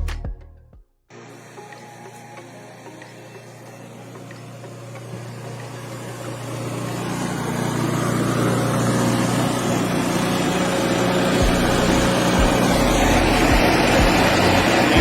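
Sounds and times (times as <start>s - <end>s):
engine running steadily: 3.0s - 15.0s.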